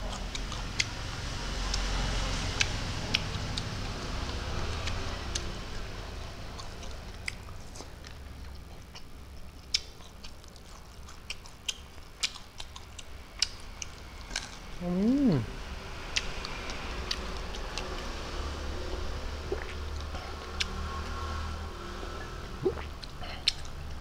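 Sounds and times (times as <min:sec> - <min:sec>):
person chewing food: 0:00.0 - 0:15.4, 0:16.1 - 0:18.1, 0:19.0 - 0:21.2, 0:22.6 - 0:24.0
mouth clicks and smacks: 0:06.6 - 0:13.6, 0:19.5 - 0:20.7, 0:22.6 - 0:23.8.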